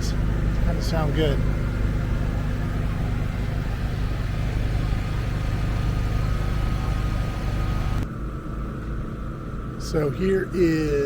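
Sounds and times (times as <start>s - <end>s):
engine low hum: 0.0s - 11.0s.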